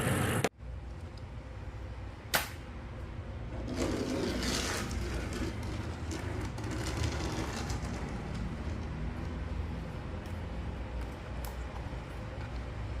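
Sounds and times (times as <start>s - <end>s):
sharp click: 2.3s - 2.6s.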